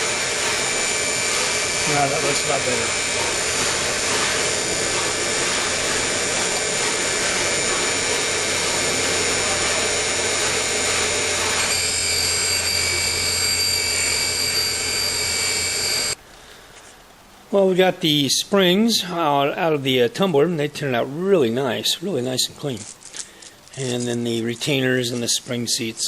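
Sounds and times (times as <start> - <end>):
motor humming: 0.0 - 16.2
stone grinding valve: 0.0 - 16.2.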